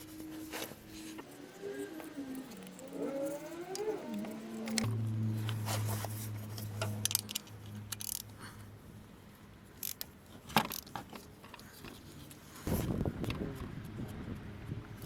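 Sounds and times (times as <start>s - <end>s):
low steady hum: 0.0s - 15.0s
metallic clicks of hand tools: 6.6s - 8.4s, 9.8s - 12.0s.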